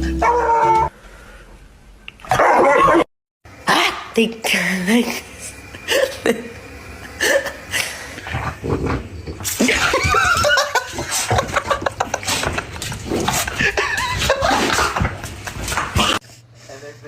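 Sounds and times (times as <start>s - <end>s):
person laughing heartily: 9.6s - 16.1s.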